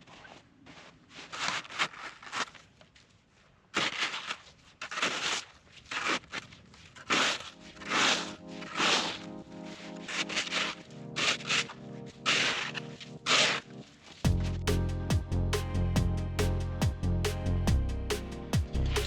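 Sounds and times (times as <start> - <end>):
crunching and scraping in snow: 0.0 - 14.6
background music with held notes: 7.6 - 19.0.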